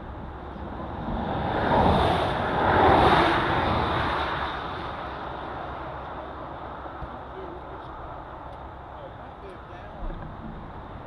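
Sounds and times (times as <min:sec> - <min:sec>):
vehicle passing rushing noise: 0:00.8 - 0:05.8.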